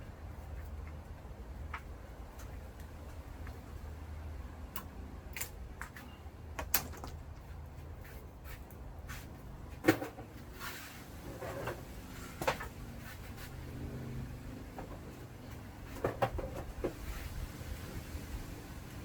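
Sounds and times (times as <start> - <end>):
clicks and knocks of wire: 4.7 - 7.5.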